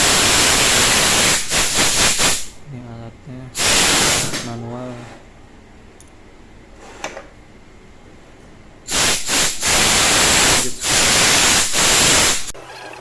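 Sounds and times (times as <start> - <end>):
pressurised air jet hissing: 0.0 - 2.6, 3.6 - 4.5, 8.9 - 12.6.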